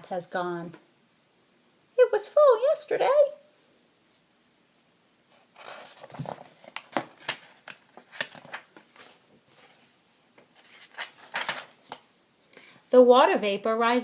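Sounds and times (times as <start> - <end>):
paper pages turning: 5.3 - 12.2.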